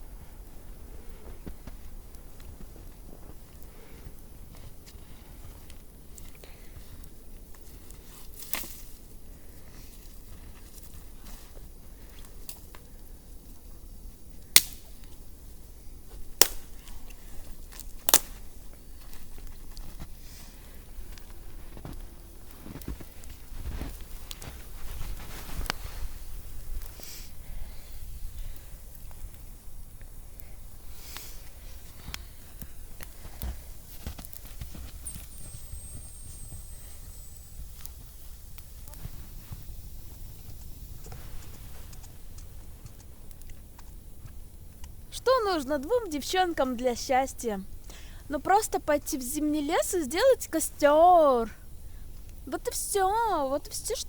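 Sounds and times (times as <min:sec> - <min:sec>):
faint small crackles: 0:00.2 - 0:47.1
wood cracking sharply: 0:14.6 - 0:14.8, 0:16.4 - 0:16.7.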